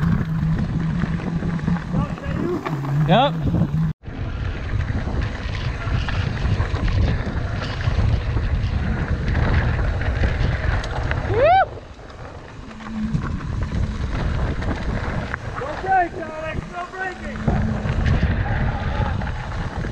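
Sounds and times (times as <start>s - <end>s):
mountain bike rolling on dirt: 0.0s - 19.9s
wind buffeting microphone: 0.0s - 19.9s
person whooping: 11.3s - 11.8s.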